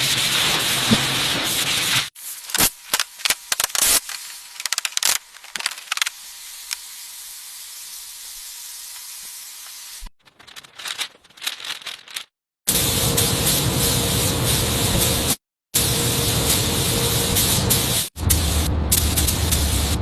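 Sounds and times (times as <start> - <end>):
spraying hiss: 0.0 - 2.8, 12.7 - 20.0.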